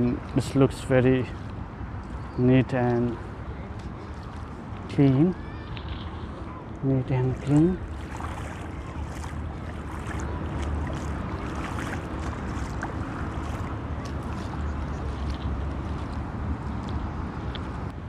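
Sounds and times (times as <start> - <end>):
wind rumbling on microphone: 3.4 - 18.0
shallow seawater washing ashore: 3.8 - 16.3.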